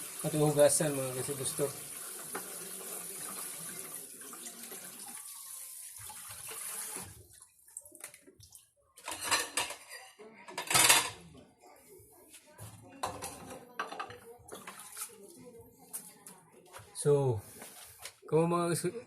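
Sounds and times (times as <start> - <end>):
tap water running: 0.0 - 8.6
water splashing: 14.5 - 15.4.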